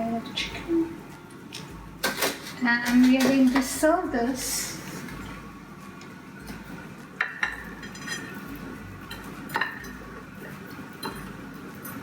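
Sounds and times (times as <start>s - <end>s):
metal tongs clinking on dish: 7.2s - 8.5s.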